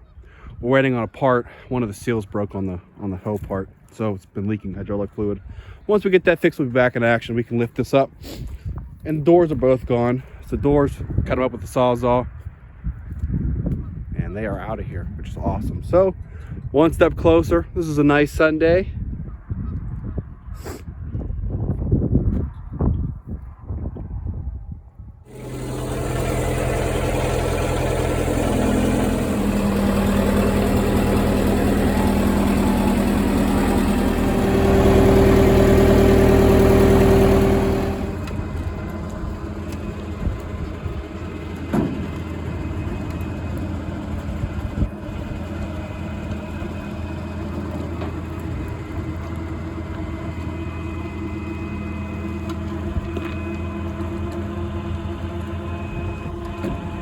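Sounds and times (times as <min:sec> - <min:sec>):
engine running: 0:25.3 - 0:57.0.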